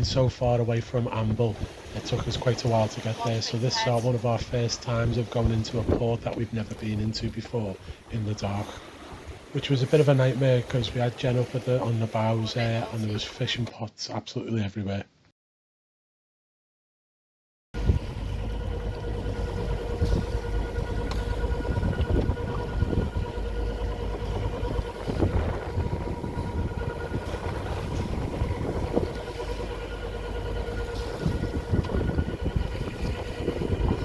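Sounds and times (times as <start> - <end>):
wind rumbling on microphone: 0.0 - 9.6, 17.8 - 34.0
boat engine running: 0.0 - 13.7, 17.8 - 34.0.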